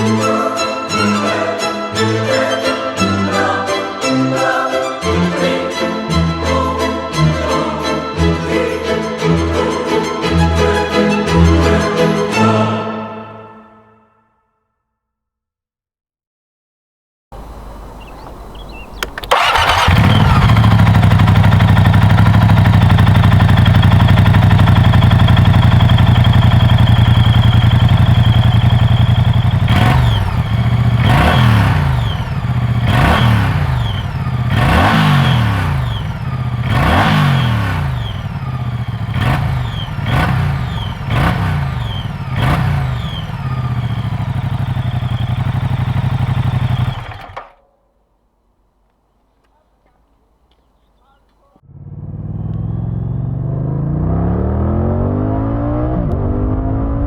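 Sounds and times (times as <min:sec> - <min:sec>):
motorcycle engine idling: 0:17.4 - 0:47.6, 0:51.6 - 0:53.7
motorcycle engine revving: 0:17.4 - 0:47.6, 0:51.6 - 0:57.0
motorcycle engine starting: 0:17.4 - 0:47.6, 0:51.6 - 0:57.0.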